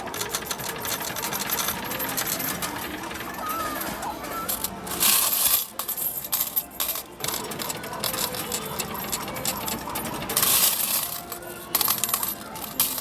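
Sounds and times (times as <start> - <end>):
arcade background noise: 0.0 - 13.0
metal medals clattering: 3.4 - 13.0.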